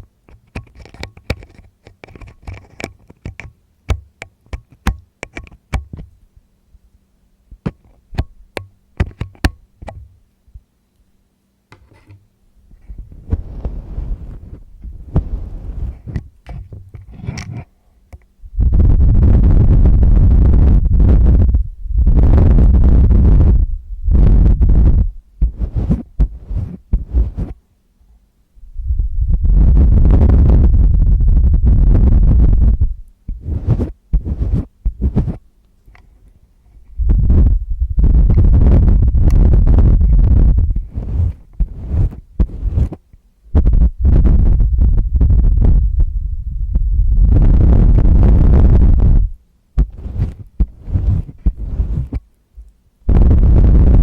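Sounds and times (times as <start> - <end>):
tool clicking and tapping on microphone: 0.0 - 6.2, 7.6 - 10.2, 11.7 - 12.3, 24.2 - 27.6, 32.6 - 36.1, 38.2 - 43.0, 49.8 - 52.8
scratchy rubbing: 11.7 - 12.2, 12.8 - 17.7, 18.6 - 27.6, 29.3 - 35.5, 36.7 - 43.0, 43.6 - 45.8, 47.2 - 52.3, 53.1 - 54.0
loud low rumbling rub on mic: 11.8 - 17.7, 18.4 - 27.6, 28.6 - 35.5, 36.6 - 54.0.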